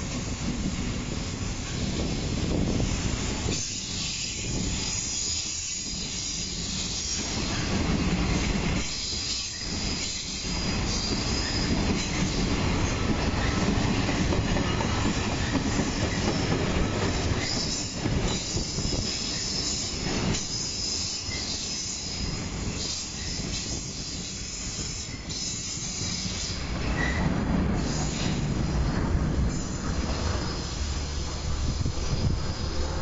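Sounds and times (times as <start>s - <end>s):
high wheel squeal: 29.5s - 31.4s.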